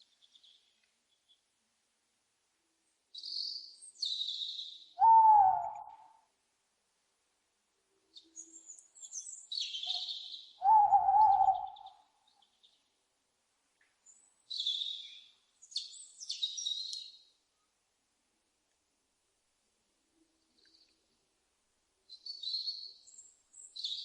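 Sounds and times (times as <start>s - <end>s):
owl hoarse calls: 5.0s - 6.1s, 9.8s - 12.0s
owl hooting: 5.0s - 6.2s, 9.8s - 12.0s.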